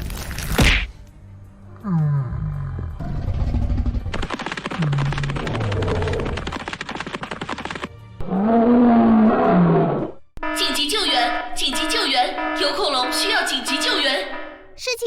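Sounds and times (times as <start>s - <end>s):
deep animal roar calls: 1.8s - 4.1s, 4.8s - 6.5s, 8.2s - 10.2s
cartoon music: 10.6s - 15.0s.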